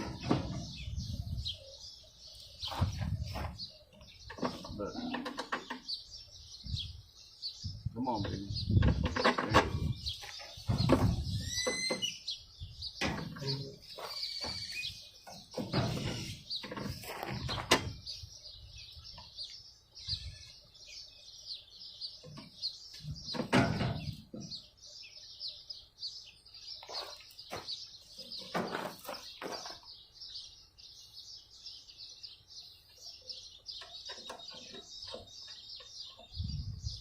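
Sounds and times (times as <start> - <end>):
knocks and clatters of mower parts: 0.0 - 0.8, 4.2 - 6.0, 8.2 - 12.1, 13.0 - 18.1, 22.2 - 24.7, 26.8 - 30.0, 33.7 - 36.3
birds chirping: 0.0 - 37.0.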